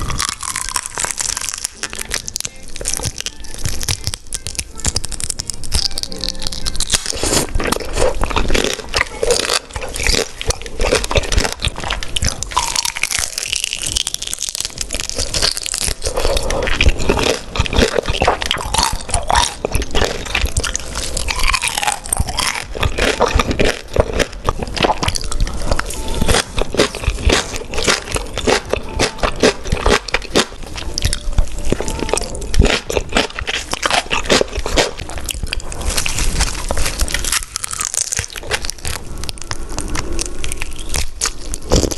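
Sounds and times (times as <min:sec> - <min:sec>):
person chewing with wet clicks: 0:00.0 - 0:41.9.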